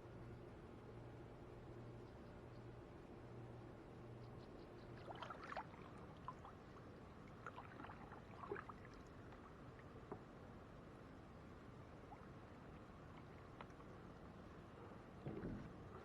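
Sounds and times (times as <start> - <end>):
water drips against a kayak: 12.1 - 14.2.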